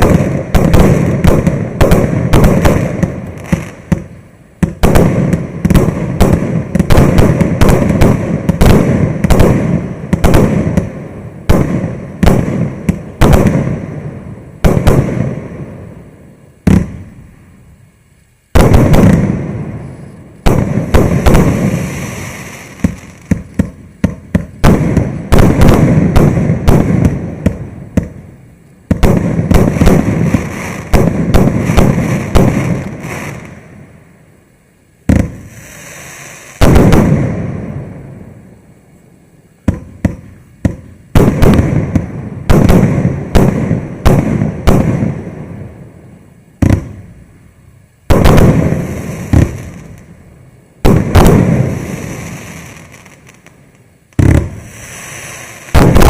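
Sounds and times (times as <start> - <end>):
firework cake firing shots: 0.0 - 15.8, 18.6 - 19.6, 20.4 - 28.2, 28.9 - 33.6, 35.1 - 37.8, 39.7 - 45.5, 48.1 - 50.0, 50.8 - 53.4, 54.2 - 56.0.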